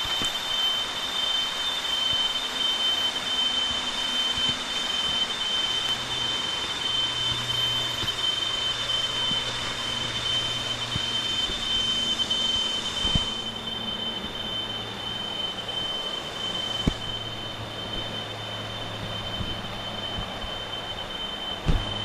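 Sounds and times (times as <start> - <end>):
cicadas droning: 0.0 - 22.0.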